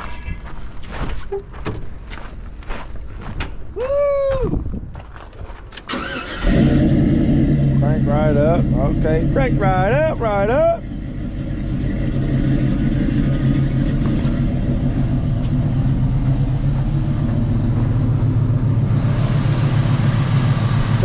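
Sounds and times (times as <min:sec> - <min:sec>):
car engine idling: 0:06.0 - 0:21.0.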